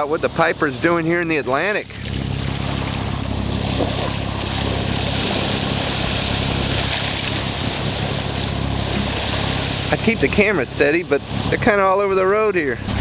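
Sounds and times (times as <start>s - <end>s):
boat engine humming: 0.0s - 13.0s
water rushing along hull: 0.0s - 13.0s.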